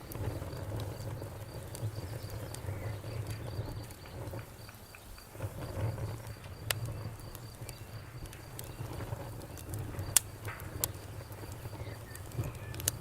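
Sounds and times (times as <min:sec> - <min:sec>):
campfire crackling and popping: 0:00.0 - 0:13.0
low rumble of burning fire: 0:00.0 - 0:13.0.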